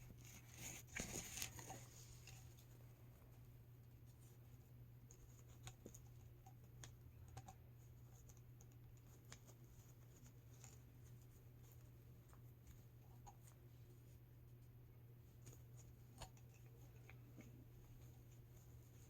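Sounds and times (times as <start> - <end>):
low steady hum: 0.0 - 19.0
faint clicks and taps of handling: 5.0 - 13.6, 15.3 - 19.0.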